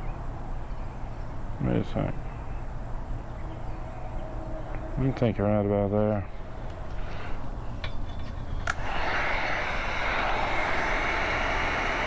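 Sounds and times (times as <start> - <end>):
heat gun switch click: 8.6 - 9.2
heat gun blowing: 8.6 - 12.0.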